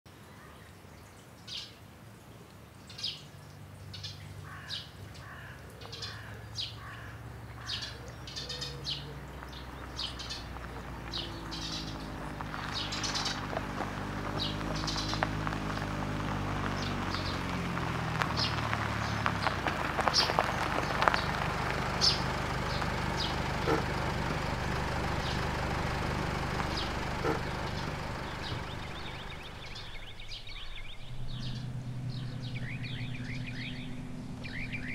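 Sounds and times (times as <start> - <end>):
birds chirping: 2.8 - 34.9
low droning background: 9.3 - 34.9.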